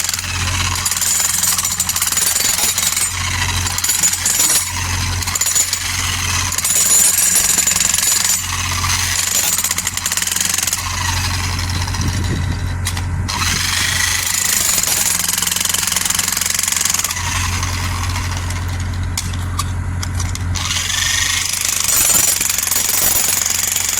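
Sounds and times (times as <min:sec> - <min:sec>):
excavator engine hum: 0:16.8 - 0:21.6.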